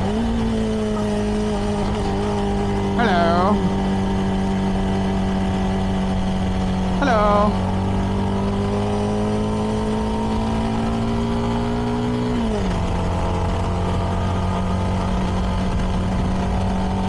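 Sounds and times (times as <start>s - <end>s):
motorcycle engine accelerating: 3.6s - 17.0s.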